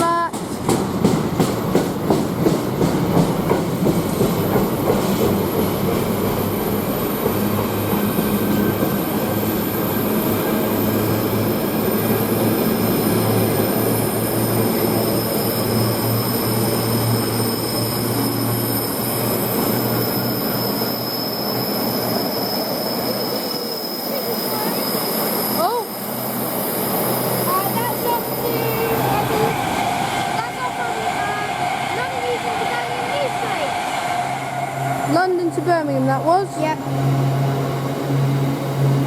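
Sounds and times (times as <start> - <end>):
train rolling rumble: 0.0 - 39.0
train wheels clicking over rail joints: 0.2 - 9.2
high wheel squeal: 6.9 - 35.6.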